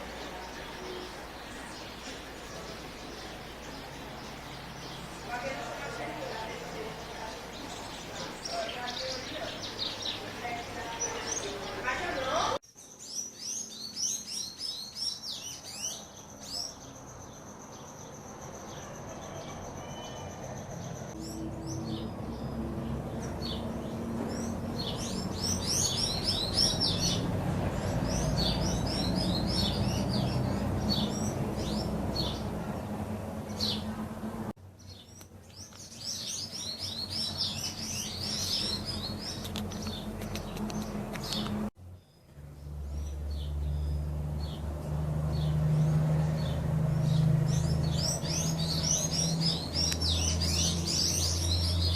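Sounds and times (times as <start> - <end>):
songbirds chirping and singing: 0.0 - 51.9.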